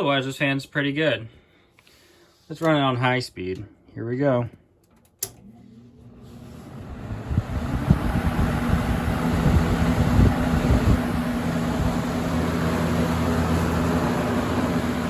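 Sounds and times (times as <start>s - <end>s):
box fan motor humming: 5.3s - 15.0s
gusty low rumbling: 6.8s - 13.4s
rush of moving air: 6.8s - 13.5s.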